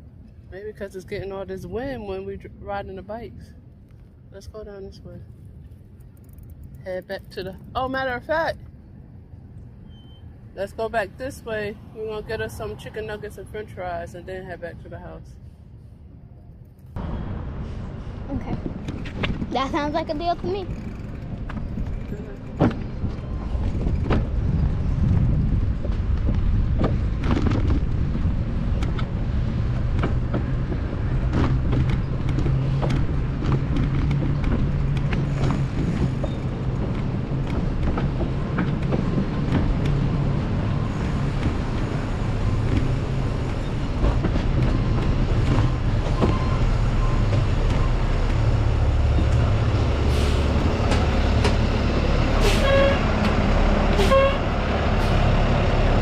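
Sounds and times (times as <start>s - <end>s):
street traffic: 0.0s - 56.0s
wind buffeting microphone: 17.2s - 53.9s.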